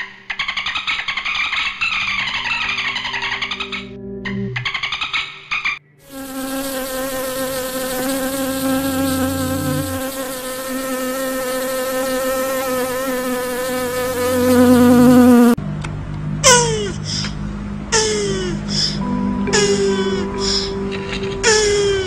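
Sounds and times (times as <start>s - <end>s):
wasps buzzing: 6.0s - 15.6s.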